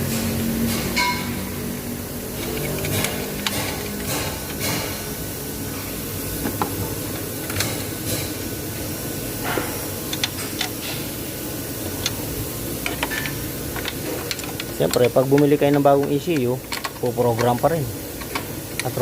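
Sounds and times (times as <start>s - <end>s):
clicks and taps of tools: 2.4s - 5.0s, 7.4s - 8.3s, 9.4s - 11.0s, 12.8s - 19.0s.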